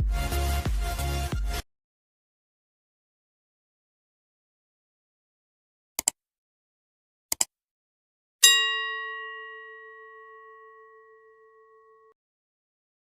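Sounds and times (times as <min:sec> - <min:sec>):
double click: 0:07.3 - 0:07.5
bell-like ding: 0:08.4 - 0:12.2.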